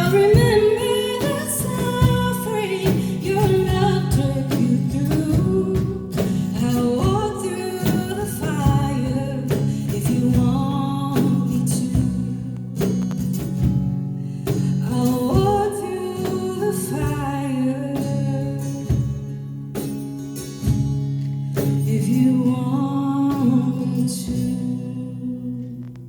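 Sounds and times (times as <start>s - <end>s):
woman singing: 0.0s - 13.2s, 14.5s - 19.3s, 21.6s - 26.0s.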